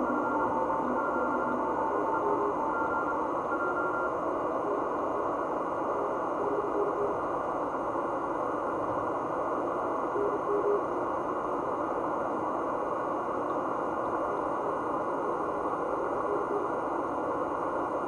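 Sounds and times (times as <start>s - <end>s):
faint morse code tone: 0.0s - 7.2s, 10.1s - 10.9s
radio band noise hiss: 0.0s - 18.0s.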